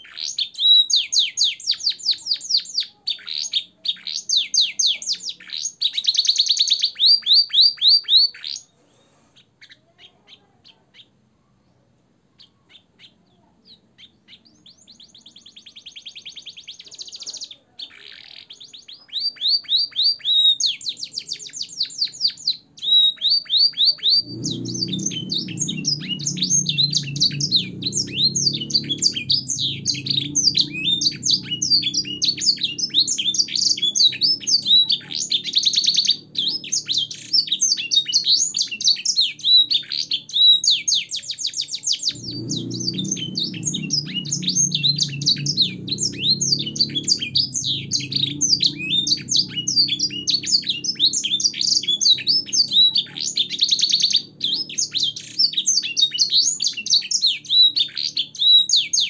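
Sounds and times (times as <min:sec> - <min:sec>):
canary singing chirps and trills: 0:00.0 - 0:59.0
low hum: 0:24.2 - 0:37.0, 0:42.1 - 0:54.5.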